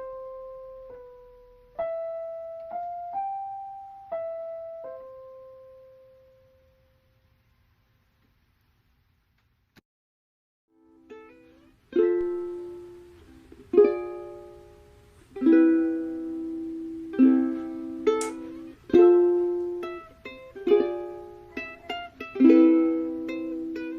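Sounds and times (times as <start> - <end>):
plucked string chords: 10.8 - 23.9.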